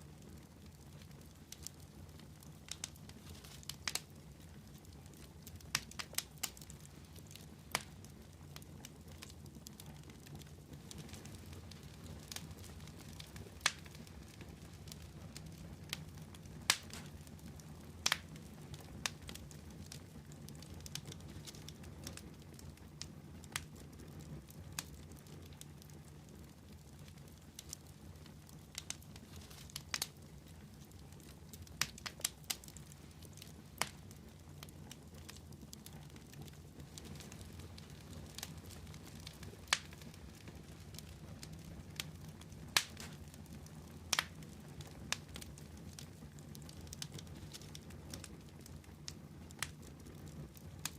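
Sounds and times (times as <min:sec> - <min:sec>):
fire crackling: 0:00.0 - 0:50.9.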